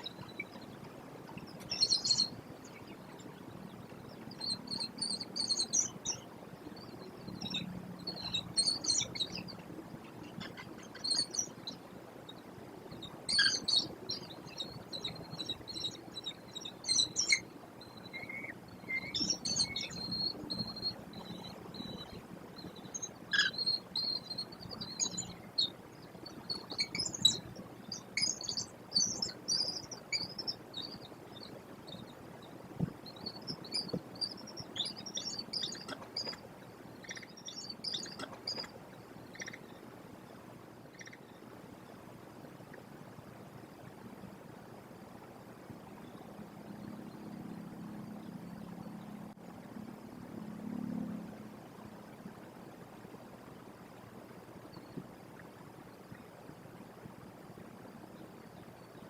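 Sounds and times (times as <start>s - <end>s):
birds chirping: 0.0s - 41.5s
faint background hiss: 0.0s - 59.0s.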